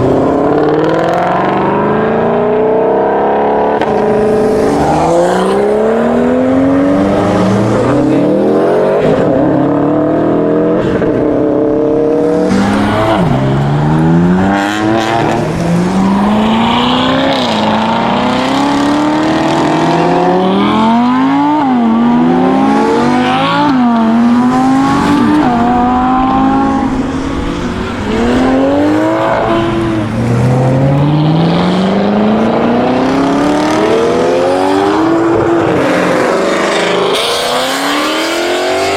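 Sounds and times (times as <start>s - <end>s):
sports cars accelerating hard: 0.0s - 38.9s.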